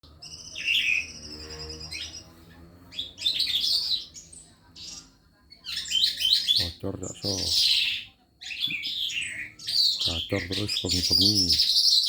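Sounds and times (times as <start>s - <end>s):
lark singing: 2.9s - 12.0s.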